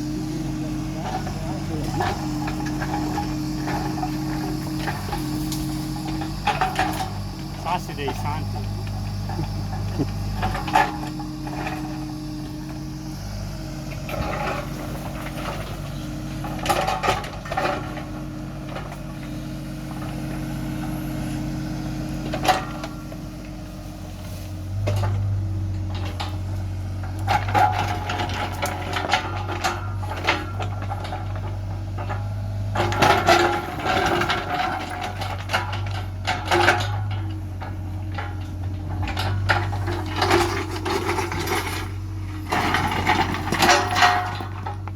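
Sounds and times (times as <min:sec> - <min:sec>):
low machine hum: 0:00.0 - 0:44.9.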